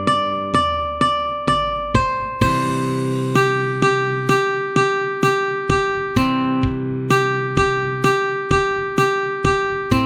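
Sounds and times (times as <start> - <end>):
plucked ukulele notes: 0.0 - 10.0
pop backing track: 0.0 - 10.0
bright cymbal crash: 2.4 - 6.5.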